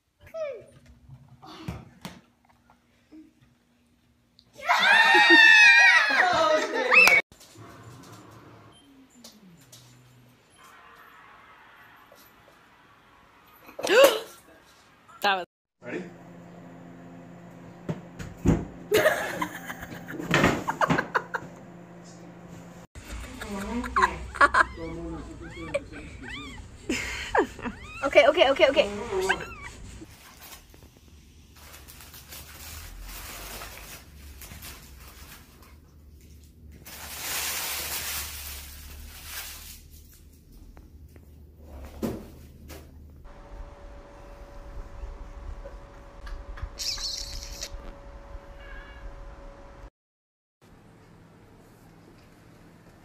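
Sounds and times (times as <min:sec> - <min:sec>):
cat hissing: 0:24.1 - 0:28.2, 0:28.8 - 0:30.1
steady low hum: 0:42.2 - 0:46.8.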